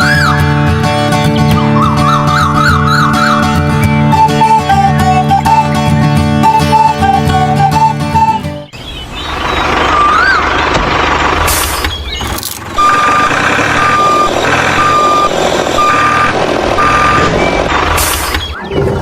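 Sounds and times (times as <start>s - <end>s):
truck reversing alarm beeping: 1.7s - 10.8s, 11.4s - 19.0s
engine rumble: 6.4s - 19.0s.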